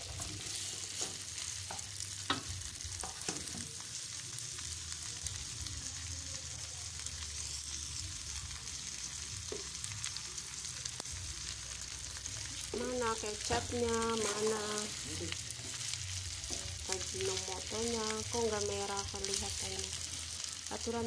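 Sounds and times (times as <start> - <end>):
food sizzling in a wok: 0.0 - 21.0
spatula scraping a pan: 13.5 - 17.1.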